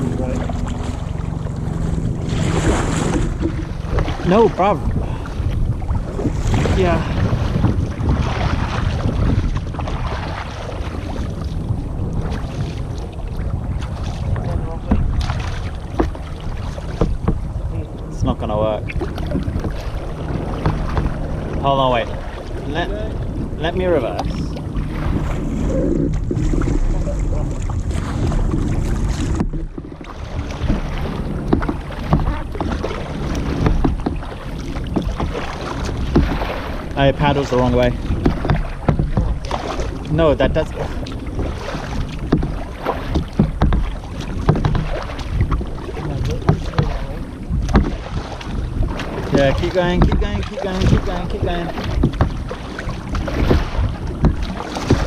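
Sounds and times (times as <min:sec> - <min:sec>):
paddles splashing in water: 0:00.0 - 0:55.0
wind buffeting microphone: 0:00.0 - 0:55.0
water dripping from paddles: 0:30.4 - 0:55.0.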